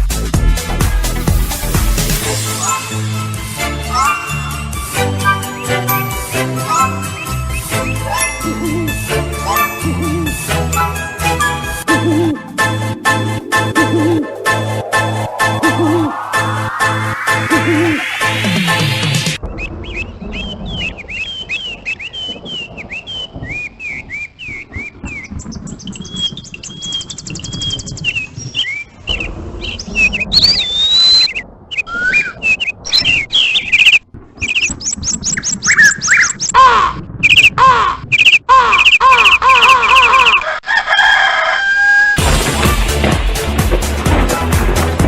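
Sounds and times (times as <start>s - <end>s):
bird sweeping call notes: 2.5s - 3.0s, 3.8s - 18.9s, 26.0s - 40.4s
birds chirping: 3.7s - 18.5s, 19.3s - 40.5s.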